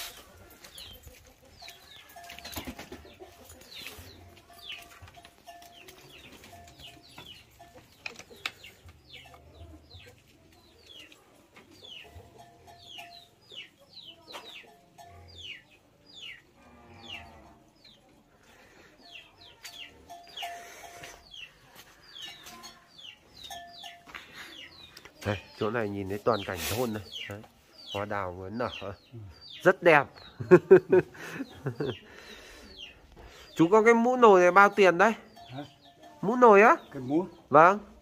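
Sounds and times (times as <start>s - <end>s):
birds cheeping: 18.7s - 38.0s.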